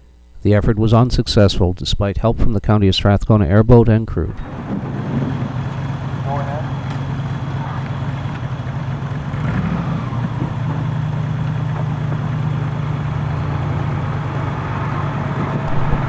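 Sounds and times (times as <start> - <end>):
engine humming steadily: 4.3 - 16.0.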